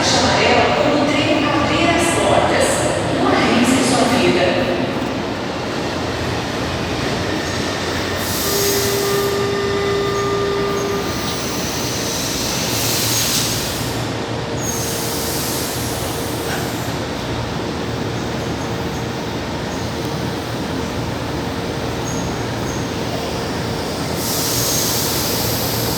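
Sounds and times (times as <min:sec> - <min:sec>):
metro train rumbling: 0:00.0 - 0:25.9
high wheel squeal: 0:07.2 - 0:13.6
whining tone: 0:08.4 - 0:12.0.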